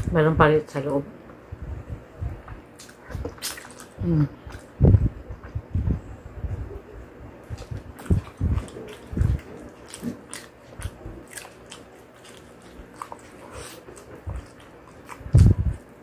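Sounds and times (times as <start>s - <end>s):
crisp chewing and biting: 2.5s - 4.8s, 7.4s - 16.0s.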